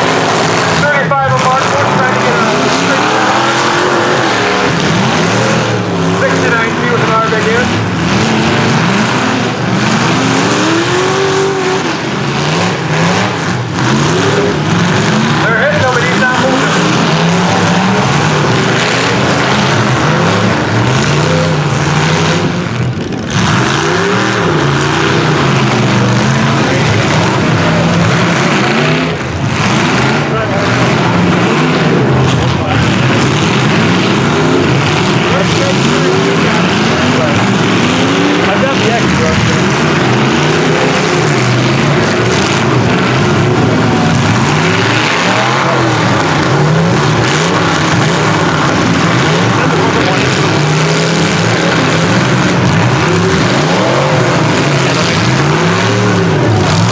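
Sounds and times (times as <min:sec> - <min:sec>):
engines revving: 0:00.0 - 0:56.9.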